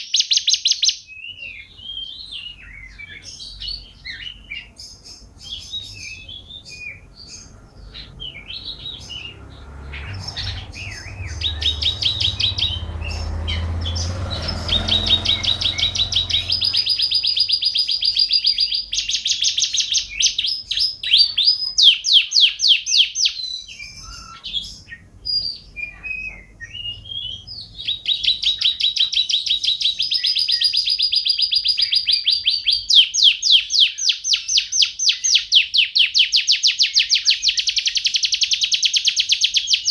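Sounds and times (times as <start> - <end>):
canary singing trills: 0.0 - 39.9
low rumble: 7.6 - 17.6.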